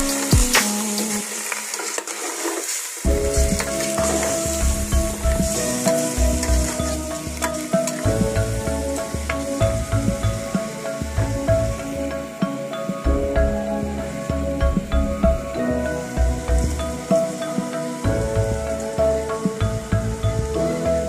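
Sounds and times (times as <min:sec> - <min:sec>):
chicken sizzling in a pot: 0:00.0 - 0:12.7.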